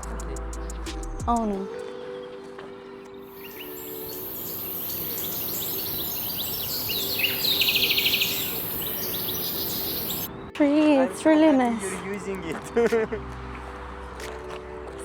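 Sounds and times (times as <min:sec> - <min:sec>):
bird trilling: 0:03.3 - 0:10.3
birds chirping: 0:03.3 - 0:10.3
steady high hiss: 0:03.3 - 0:10.3.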